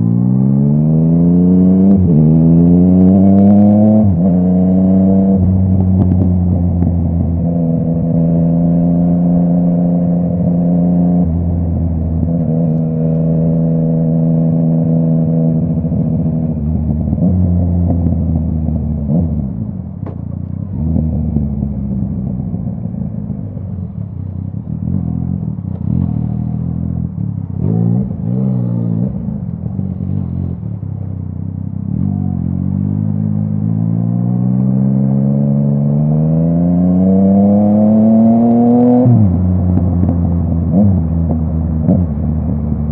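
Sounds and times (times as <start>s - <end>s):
motorcycle engine revving: 0.0s - 42.9s
exhaust pops: 19.5s - 32.1s.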